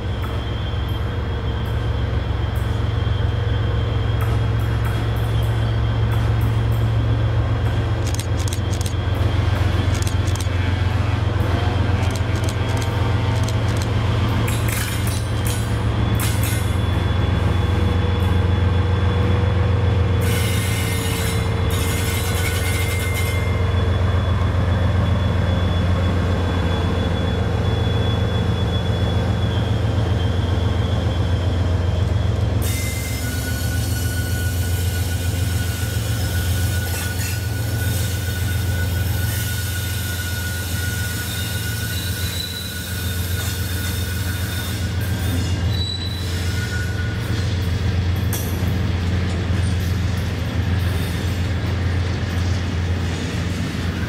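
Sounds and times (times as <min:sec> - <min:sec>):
train engine drone: 0:00.0 - 0:54.0
wheel squeals: 0:20.2 - 0:47.7.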